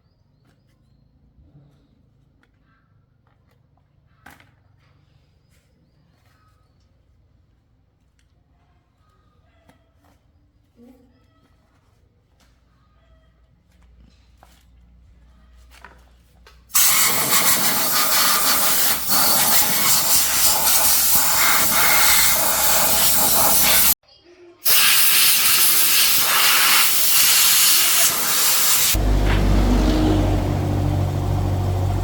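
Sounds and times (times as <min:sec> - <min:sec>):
pressurised gas hissing: 0:16.7 - 0:24.0, 0:24.6 - 0:29.0.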